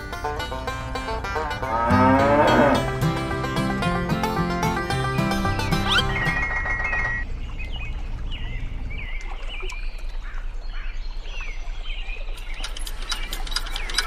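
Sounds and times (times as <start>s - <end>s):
music phrase: 0.0s - 6.4s
birds chirping: 0.0s - 14.0s.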